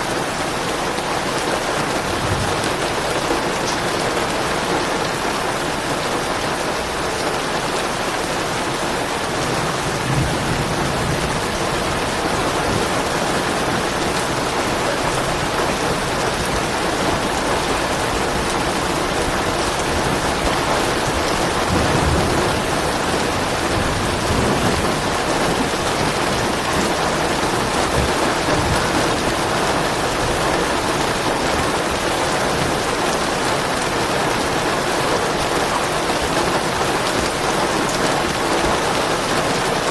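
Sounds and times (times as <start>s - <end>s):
steady rain: 0.0s - 39.9s
low thunder rumbling: 1.9s - 3.6s, 9.2s - 32.8s.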